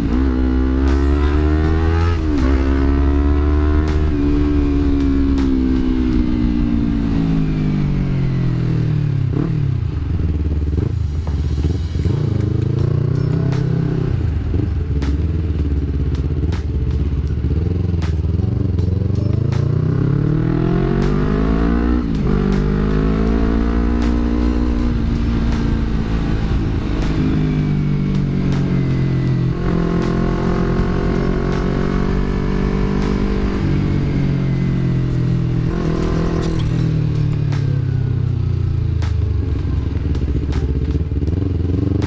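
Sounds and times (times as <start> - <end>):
motorcycle engine revving with upshifts: 0.0 - 42.0.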